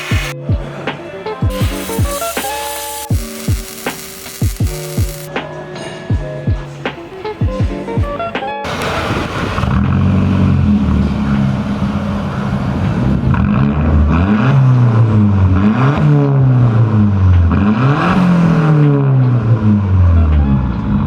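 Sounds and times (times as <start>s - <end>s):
car engine idling and revving: 8.6s - 21.0s.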